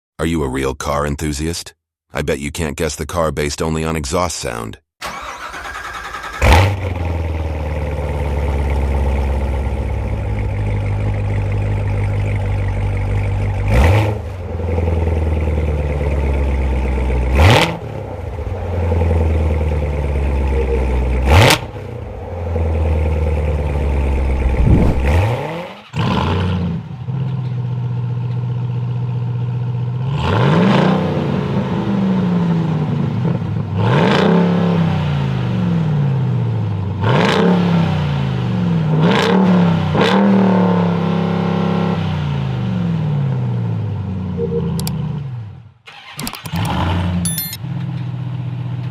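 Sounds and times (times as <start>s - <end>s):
engine revving: 5.0s - 8.2s, 13.6s - 15.8s, 17.2s - 26.9s, 30.0s - 32.9s, 33.7s - 35.9s, 37.0s - 42.2s, 45.9s - 47.6s
car engine surging: 5.0s - 26.9s.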